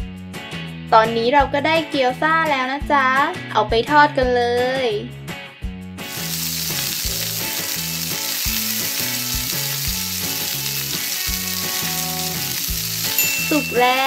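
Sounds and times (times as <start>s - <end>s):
bouncy background music: 0.0s - 14.0s
frying sizzle: 6.0s - 14.0s.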